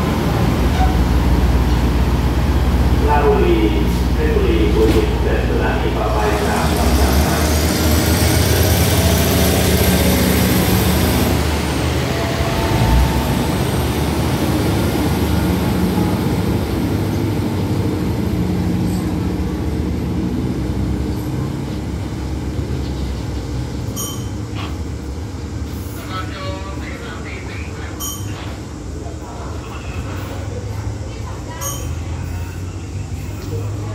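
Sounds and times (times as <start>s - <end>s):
train wheels rolling on rails: 0.0s - 26.1s
diesel train engines running: 0.0s - 33.9s.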